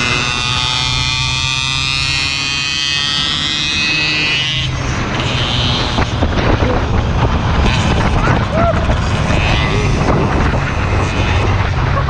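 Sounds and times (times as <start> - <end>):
motorcycle engine high-pitched whine: 0.0 - 12.0
low engine hum: 4.6 - 12.0.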